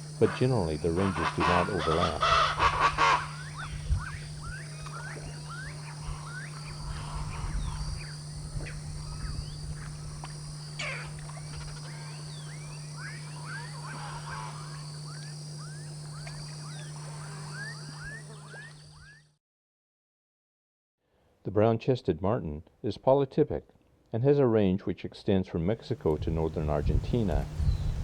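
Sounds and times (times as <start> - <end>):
low hum: 0.0 - 19.1
high-pitched insect-like whine: 0.0 - 19.4
chirps sweeping upward: 3.4 - 6.8, 10.8 - 19.2.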